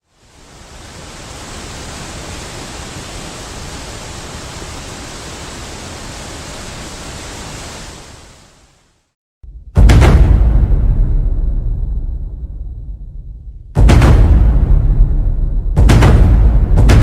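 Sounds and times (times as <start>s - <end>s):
waterfall rushing: 0.0s - 9.2s.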